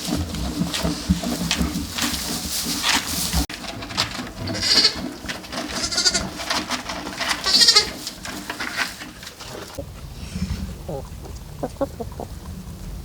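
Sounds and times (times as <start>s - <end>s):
farm animal bleating: 4.4s - 6.5s, 7.3s - 8.1s.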